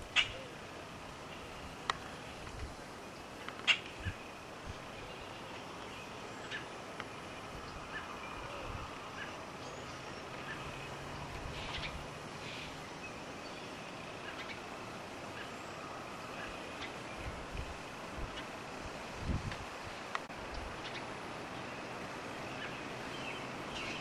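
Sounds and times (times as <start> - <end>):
outdoor background hiss: 0.0 - 24.0
faint bird calls: 0.1 - 2.3, 3.1 - 17.4.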